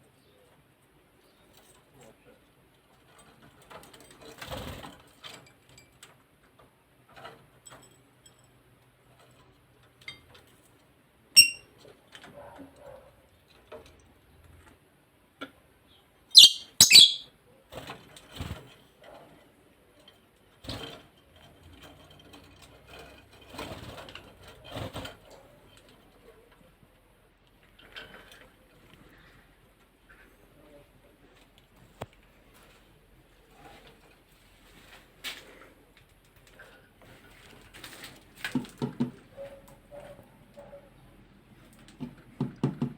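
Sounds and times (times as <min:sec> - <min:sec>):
parrots calling: 0:11.4 - 0:11.6, 0:16.4 - 0:17.3.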